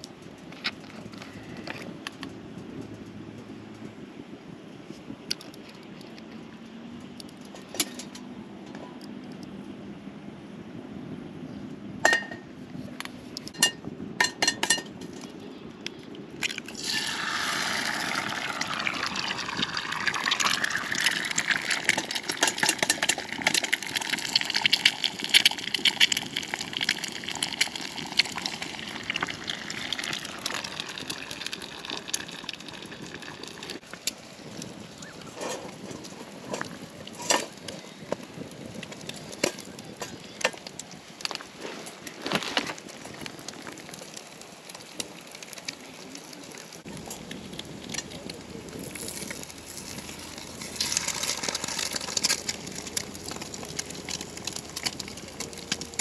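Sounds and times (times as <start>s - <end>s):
water pouring into a container: 16.4s - 33.8s, 48.8s - 52.8s.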